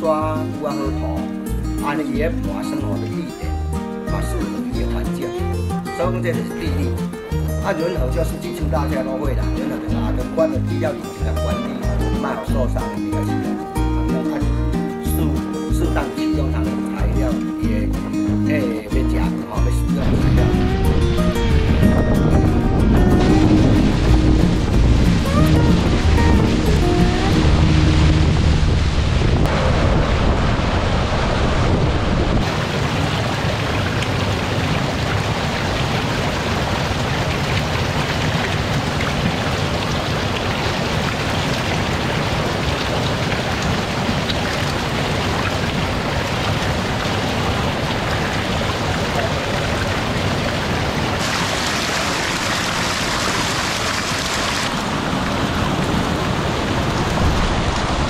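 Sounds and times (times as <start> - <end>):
water gushing and splashing: 20.0 - 58.0.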